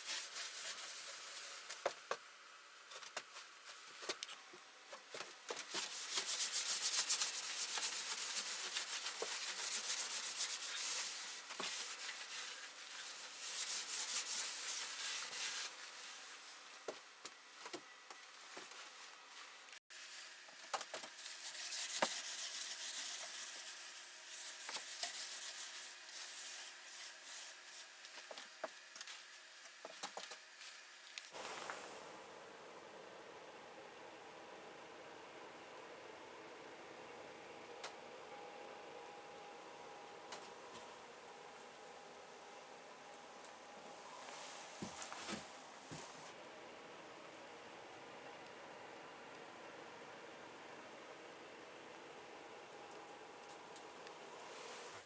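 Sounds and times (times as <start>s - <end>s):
cloth scrubbing on dry wood: 5.7s - 16.5s.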